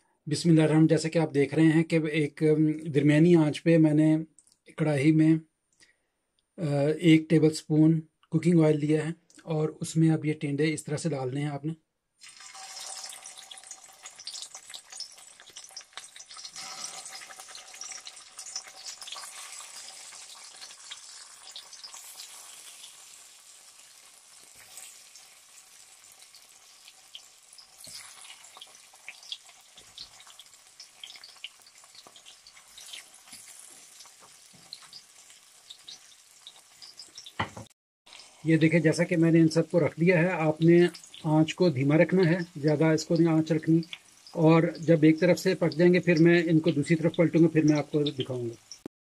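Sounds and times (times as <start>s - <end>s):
vegetables sizzling in hot oil: 12.2s - 48.9s.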